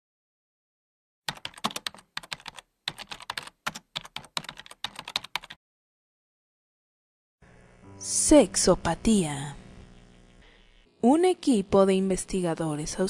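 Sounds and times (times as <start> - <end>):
computer keyboard typing: 1.3 - 5.6.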